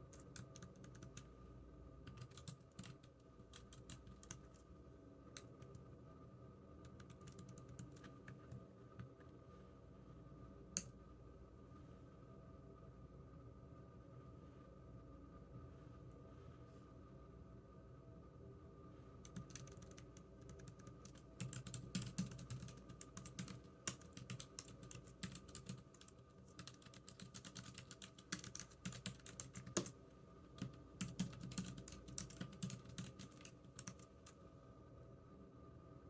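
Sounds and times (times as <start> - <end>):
computer keyboard typing: 0.1 - 1.3, 2.0 - 4.6, 6.8 - 9.1, 19.2 - 30.0, 30.6 - 34.4.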